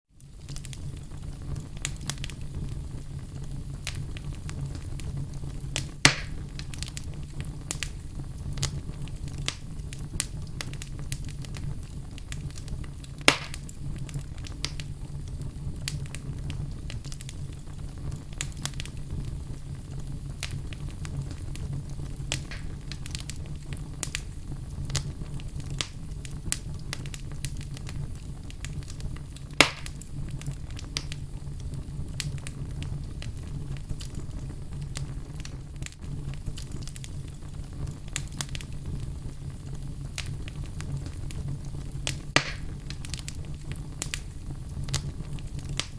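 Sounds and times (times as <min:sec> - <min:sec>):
fireplace fire crackling: 0:00.1 - 0:45.9
low steady rumble: 0:00.2 - 0:45.9
loud sharp pops: 0:05.8 - 0:06.8, 0:13.2 - 0:13.7, 0:22.3 - 0:23.3, 0:29.6 - 0:30.0, 0:42.1 - 0:43.0.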